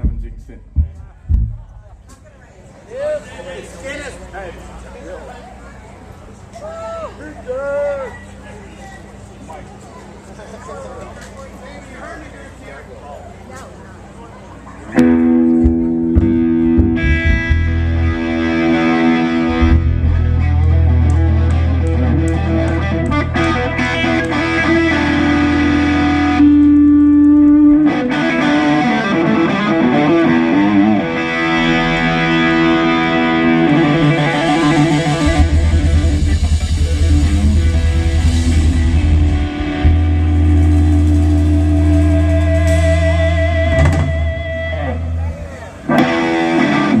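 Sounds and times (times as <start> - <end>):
bass guitar: 0.0 - 2.3, 15.0 - 47.0
distorted electric guitar: 15.0 - 47.0.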